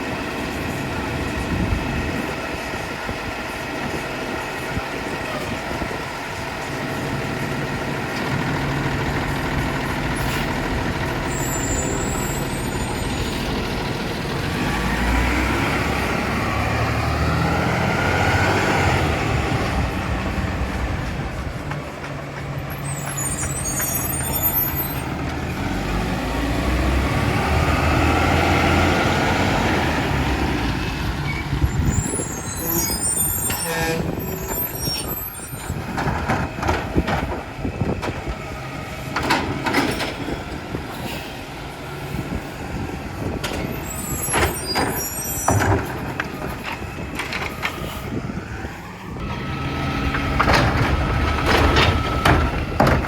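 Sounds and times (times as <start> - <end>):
diesel truck engine revving: 0.0 - 53.0
air brake hisses: 40.9 - 41.5
metal knocks and clanks: 43.4 - 47.9, 50.0 - 53.0.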